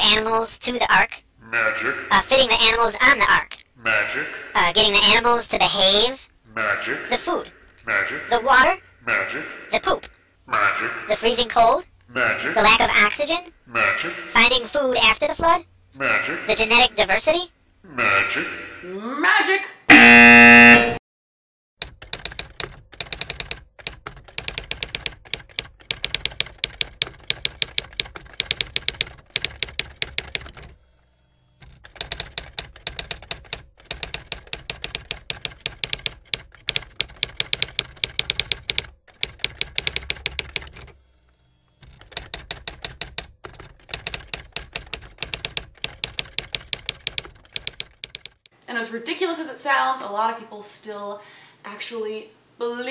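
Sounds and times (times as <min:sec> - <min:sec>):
brief loud pitched sound: 0:19.9 - 0:21.0
rapid typing clicks: 0:21.8 - 0:30.8, 0:31.6 - 0:41.0, 0:41.8 - 0:48.5.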